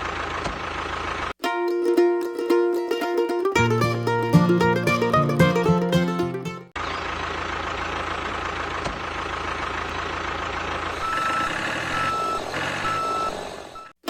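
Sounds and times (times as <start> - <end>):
heavy vehicle engine rumbling: 3.6 - 13.8
reversing alarm beeping: 11.0 - 13.9.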